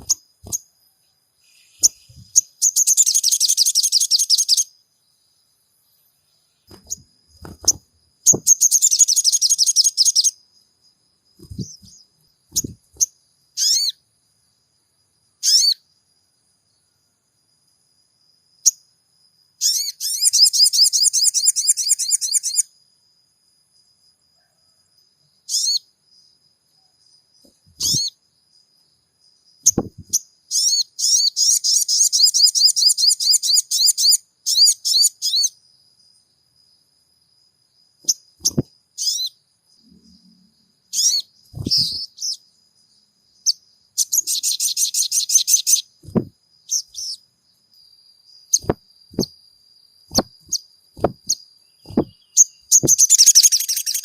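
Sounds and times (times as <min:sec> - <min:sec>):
high-pitched bird chirping trills: 0:00.0 - 0:00.7, 0:01.4 - 0:04.7, 0:06.7 - 0:10.4, 0:11.4 - 0:14.0, 0:15.4 - 0:15.8, 0:19.6 - 0:22.7, 0:25.5 - 0:25.9, 0:27.5 - 0:28.2, 0:29.6 - 0:35.6, 0:38.1 - 0:40.2, 0:40.9 - 0:42.5, 0:43.4 - 0:47.2, 0:48.3 - 0:49.3, 0:50.1 - 0:54.0
sharp bird chirps: 0:00.0 - 0:14.1, 0:15.2 - 0:16.0, 0:19.6 - 0:22.8, 0:25.3 - 0:28.7, 0:29.3 - 0:36.2, 0:37.9 - 0:54.0.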